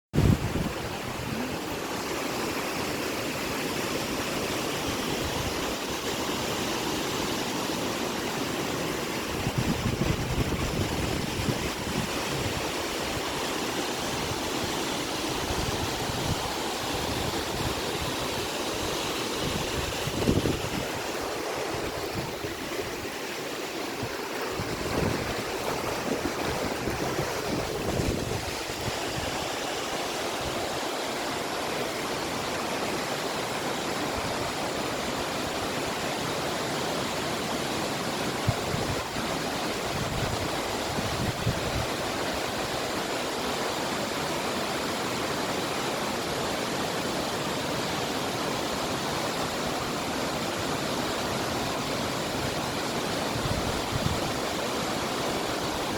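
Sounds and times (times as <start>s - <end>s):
wind gusts on microphone: 0.1s - 3.5s, 9.1s - 35.8s, 37.6s - 43.2s, 51.2s - 55.9s
waterfall roaring: 0.2s - 55.9s.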